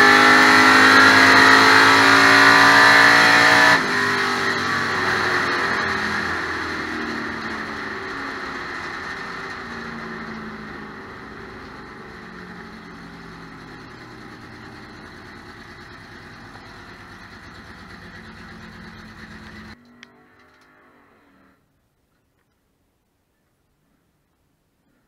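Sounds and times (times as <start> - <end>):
race car engine running: 0.0 - 19.8.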